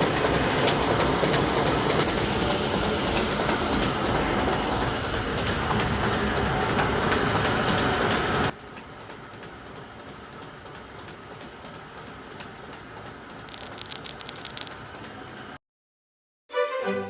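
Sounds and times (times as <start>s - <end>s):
rattling clicks: 13.5s - 14.8s.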